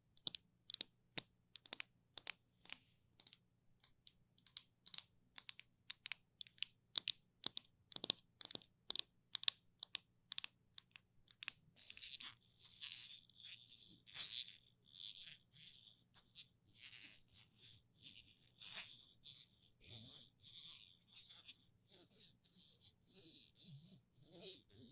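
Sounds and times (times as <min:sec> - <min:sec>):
sticky clicks and pops: 0:03.2 - 0:11.6.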